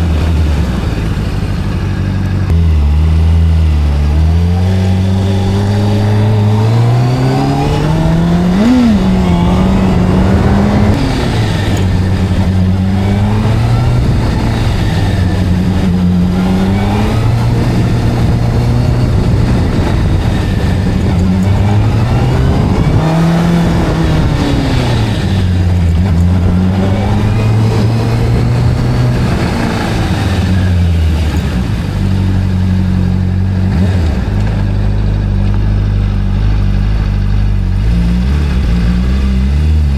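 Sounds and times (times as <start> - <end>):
video game motorcycle engine: 0.0 - 39.9.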